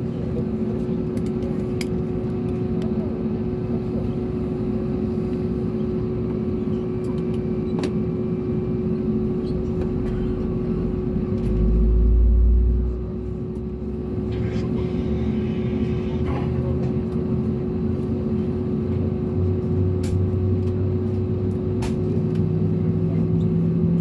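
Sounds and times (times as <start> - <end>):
aircraft cabin engine hum: 0.0 - 24.0
deep rumble: 9.2 - 17.6.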